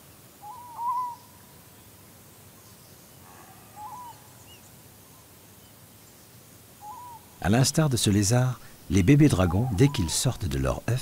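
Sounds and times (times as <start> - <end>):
quiet outdoor ambience: 0.0 - 11.0
bird calling: 0.4 - 1.4, 3.3 - 4.7, 6.8 - 7.3, 8.9 - 10.7.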